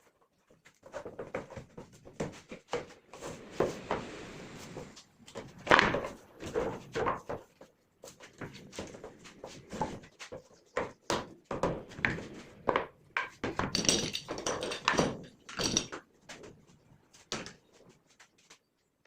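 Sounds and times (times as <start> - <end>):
wooden pieces knocking and clattering: 11.9 - 16.0.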